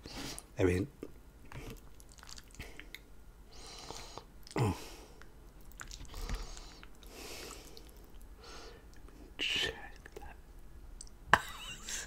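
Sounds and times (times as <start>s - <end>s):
chewing food: 1.5s - 3.1s, 5.2s - 9.2s.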